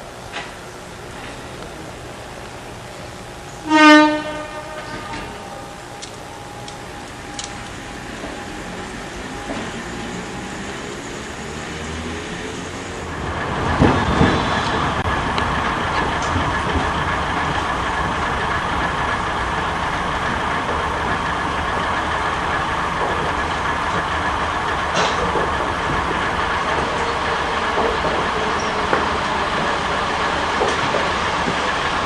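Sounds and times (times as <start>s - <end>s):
electric train rumbling on rails: 0.0s - 32.0s.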